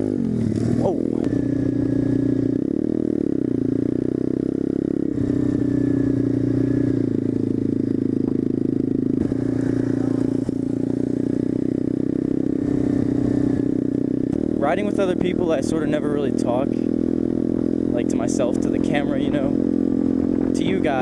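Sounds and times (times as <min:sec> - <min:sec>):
pit bike engine running: 0:00.0 - 0:21.0.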